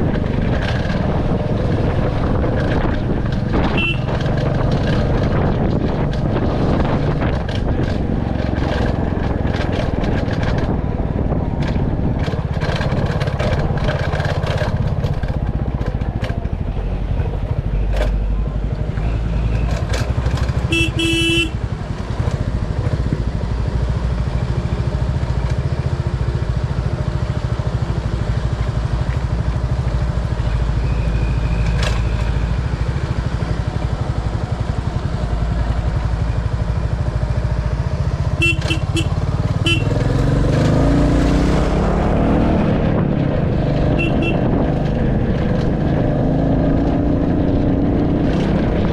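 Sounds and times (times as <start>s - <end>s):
motorcycle engine running: 0.0s - 48.9s
short horn toot: 3.7s - 4.2s, 20.7s - 21.6s, 38.4s - 40.0s, 44.0s - 44.5s.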